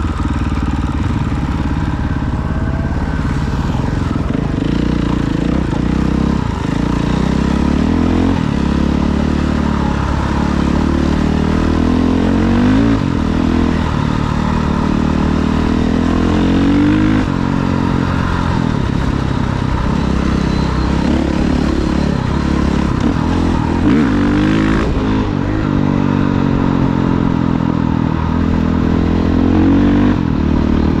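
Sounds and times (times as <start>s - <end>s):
off-road vehicle engine revving: 1.3s - 27.6s.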